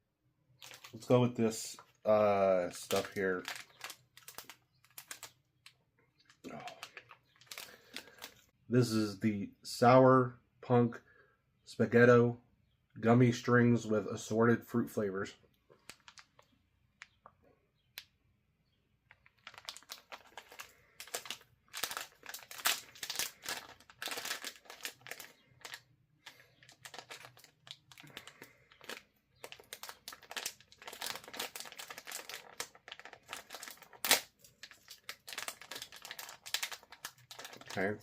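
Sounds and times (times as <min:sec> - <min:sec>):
plastic packaging crinkling: 0:00.6 - 0:08.5, 0:15.7 - 0:17.3, 0:19.0 - 0:38.0.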